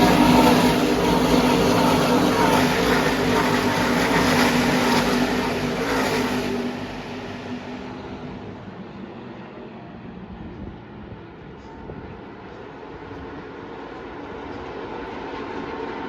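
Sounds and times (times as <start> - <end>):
race truck engines at speed: 0.0 - 11.1.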